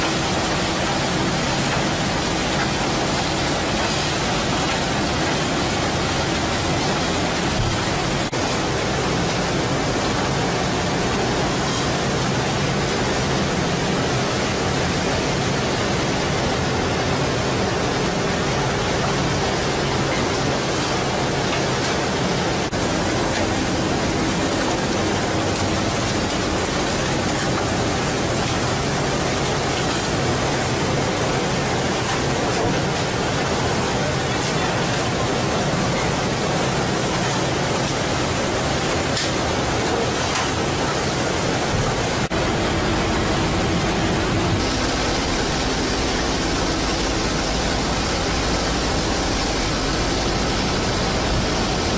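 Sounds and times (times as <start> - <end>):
rushing water: 0.0 - 51.9
wind: 0.0 - 51.9
boat engine hum: 40.7 - 51.9.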